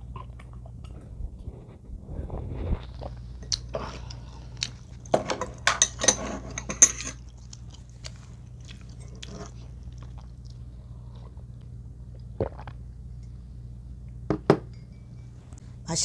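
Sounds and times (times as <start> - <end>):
chewing and crunching: 2.8 - 5.7, 6.4 - 12.8.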